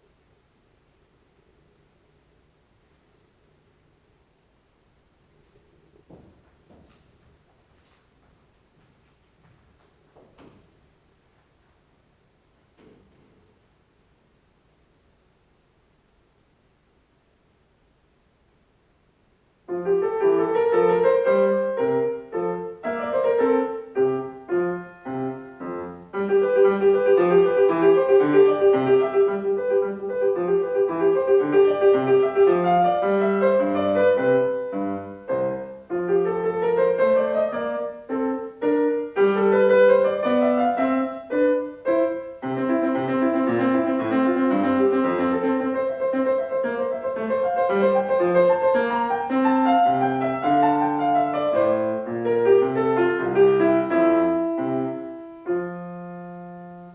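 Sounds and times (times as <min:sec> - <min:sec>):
solo piano piece: 0:19.6 - 0:56.9.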